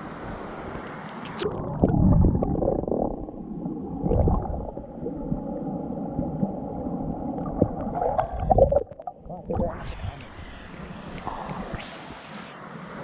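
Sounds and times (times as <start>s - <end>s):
muffled underwater gurgling: 1.4s - 12.2s
underwater rumbles and thuds: 1.7s - 10.4s.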